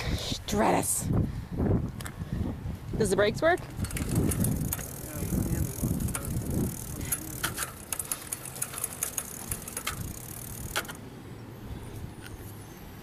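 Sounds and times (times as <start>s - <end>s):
bicycle clicking and rattling: 3.4s - 12.4s.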